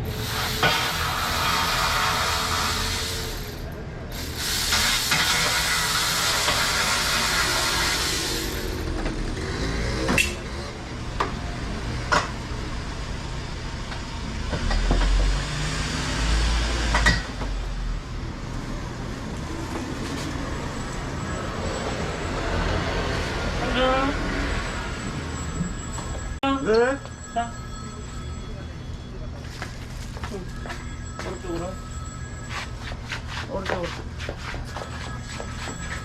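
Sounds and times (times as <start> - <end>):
gas hissing under pressure: 0.0 - 8.8.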